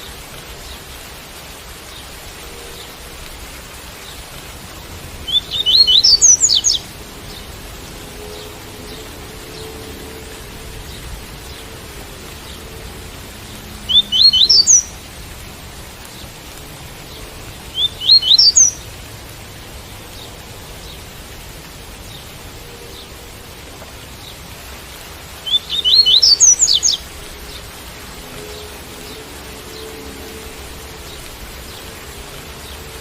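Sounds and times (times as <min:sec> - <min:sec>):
rain hiss: 0:00.0 - 0:33.0
bird singing rising notes: 0:05.2 - 0:06.8, 0:13.8 - 0:15.0, 0:17.7 - 0:18.8, 0:25.4 - 0:32.9.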